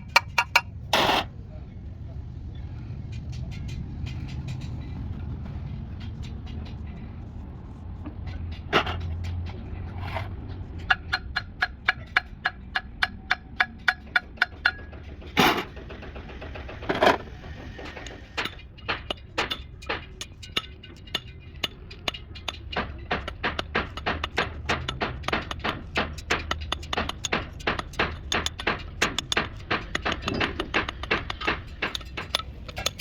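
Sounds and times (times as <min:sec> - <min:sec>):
metal tapping on metal: 0:00.0 - 0:01.1, 0:10.6 - 0:33.0.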